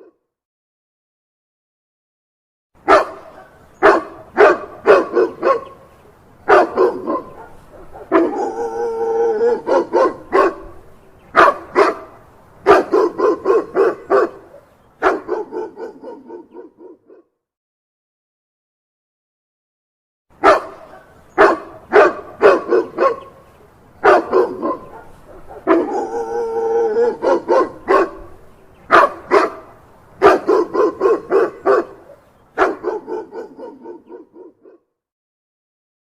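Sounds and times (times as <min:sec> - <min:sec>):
dog barking: 0:02.8 - 0:05.8, 0:06.5 - 0:17.3, 0:20.4 - 0:23.4, 0:24.0 - 0:34.9
dog drawn-out call: 0:02.9 - 0:05.9, 0:06.5 - 0:17.2, 0:20.4 - 0:23.4, 0:24.0 - 0:34.8.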